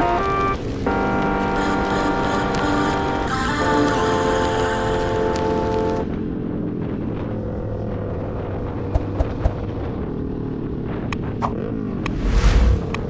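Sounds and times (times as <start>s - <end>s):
rumbling wind noise: 11.4s - 13.0s.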